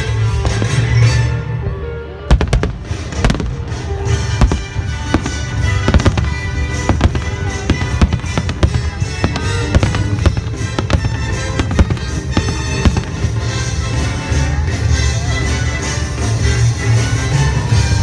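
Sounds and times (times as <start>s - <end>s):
music playing: 0.0s - 18.0s
fireworks bursting: 2.3s - 14.6s.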